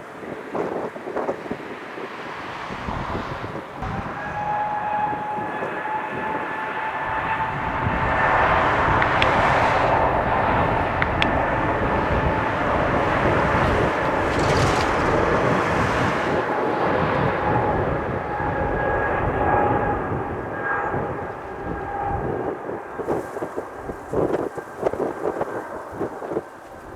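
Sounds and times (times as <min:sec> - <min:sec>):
jet engine rushing roar: 0:00.0 - 0:26.9
jet engine whine: 0:00.0 - 0:26.9.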